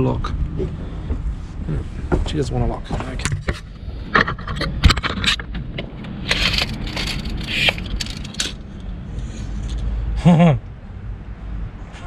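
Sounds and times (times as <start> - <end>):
metal scraping rasps: 3.6 - 9.8.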